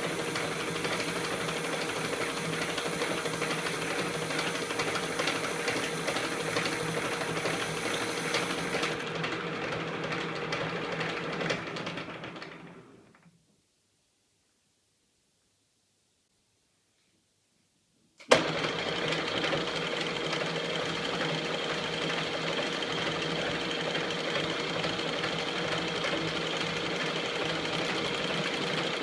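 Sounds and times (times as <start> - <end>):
lathe humming: 0.0 - 9.1.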